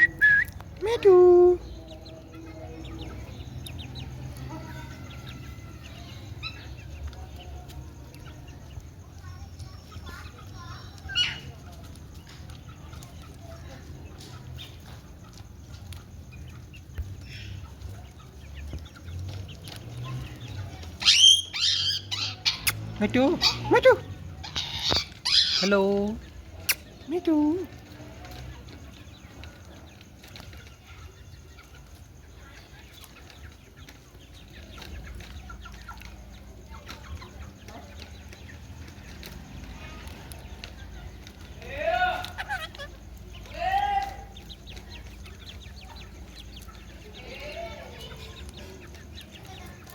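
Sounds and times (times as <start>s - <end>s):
parakeet shrill calls: 21.0s - 22.6s, 24.4s - 25.7s.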